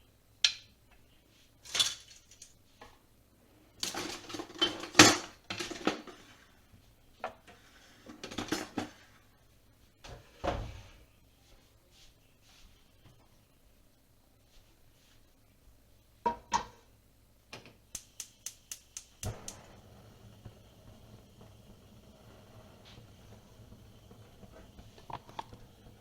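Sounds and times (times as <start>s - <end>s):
pots and dishes clattering: 3.8s - 6.3s, 8.1s - 9.0s.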